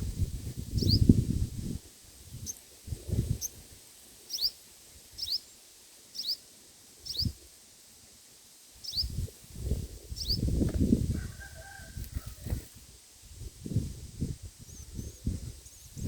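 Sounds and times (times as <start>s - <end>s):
small bird chirping: 0.8s - 1.1s, 4.3s - 4.6s, 5.2s - 6.4s, 7.0s - 7.4s, 8.8s - 9.2s, 10.1s - 10.6s.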